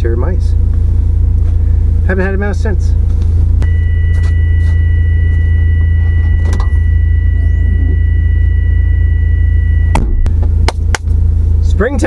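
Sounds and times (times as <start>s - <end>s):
engine and road noise rumble: 0.0s - 12.0s
high-pitched tone: 3.6s - 10.3s.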